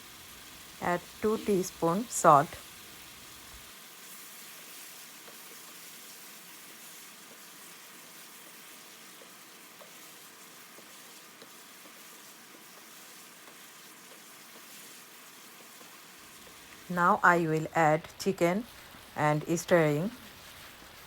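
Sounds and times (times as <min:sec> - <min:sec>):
masala sizzling in oil: 0:00.0 - 0:21.0.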